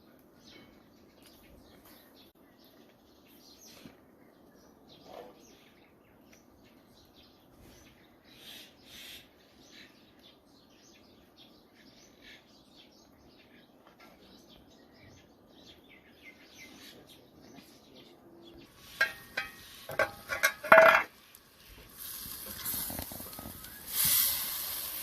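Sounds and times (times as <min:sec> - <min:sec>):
low steady background noise: 0:00.0 - 0:25.0
faint bird chirps: 0:22.6 - 0:24.5.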